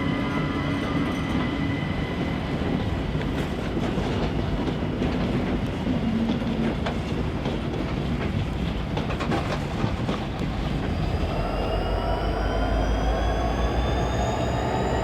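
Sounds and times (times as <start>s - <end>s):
locomotive whine rising in pitch: 0.0s - 3.9s, 10.6s - 15.0s
train rumbling along rails: 0.0s - 15.0s.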